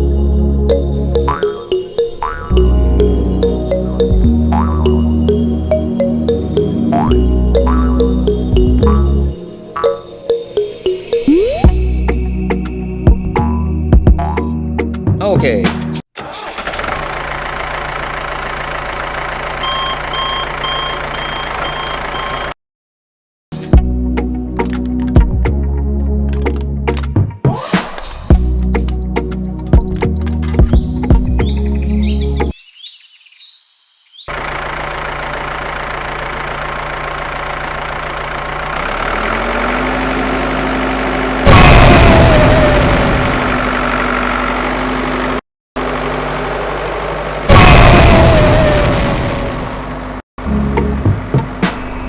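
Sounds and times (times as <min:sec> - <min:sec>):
engine running: 0:00.7 - 0:09.9, 0:16.2 - 0:22.6, 0:34.3 - 0:52.0
reversing alarm beeping: 0:01.6 - 0:04.3, 0:05.1 - 0:08.8, 0:19.6 - 0:22.6
loud falling tone: 0:41.3 - 0:43.8, 0:47.5 - 0:49.8.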